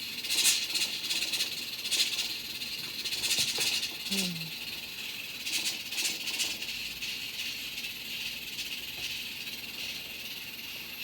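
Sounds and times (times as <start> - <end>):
toy rustling and rattling: 0.0 - 11.0.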